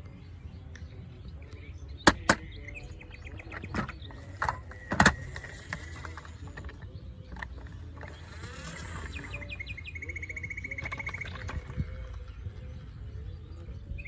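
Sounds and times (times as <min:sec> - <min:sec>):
plastic toys clicking and knocking: 0:03.4 - 0:09.2, 0:10.6 - 0:12.1.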